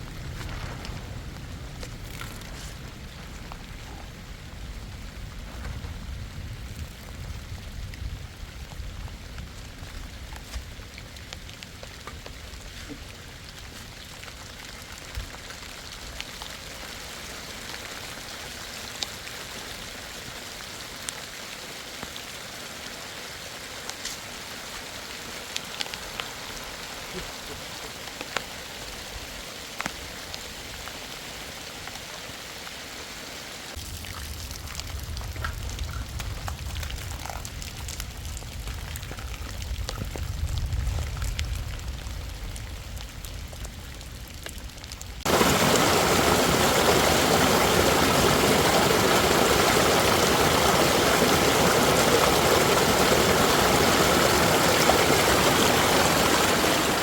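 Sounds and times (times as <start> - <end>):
low rumble: 0.0 - 10.4
sharp raindrop hits: 0.0 - 12.6, 33.7 - 57.0
heavy rain: 0.0 - 57.0.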